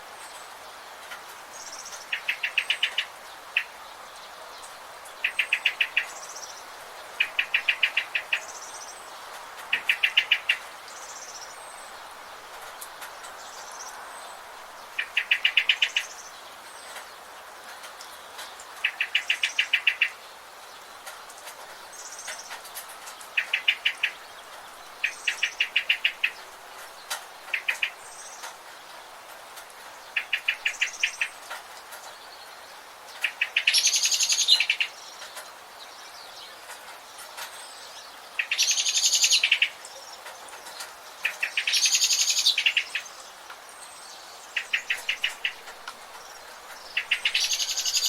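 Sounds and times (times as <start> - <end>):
steady background hiss: 0.0 - 48.0
faint high bird chirps: 46.8 - 48.0.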